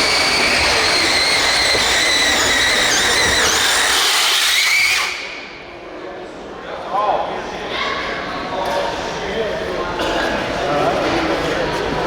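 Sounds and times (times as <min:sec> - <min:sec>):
electric motor whining: 0:00.0 - 0:05.2.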